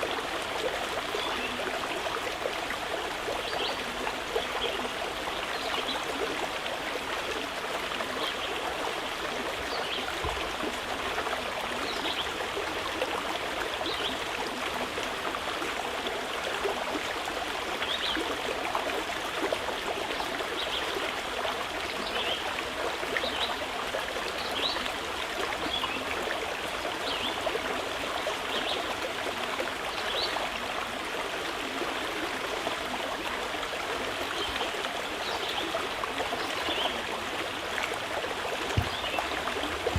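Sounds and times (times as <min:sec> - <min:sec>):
river flowing over rocks: 0:32.9 - 0:39.9.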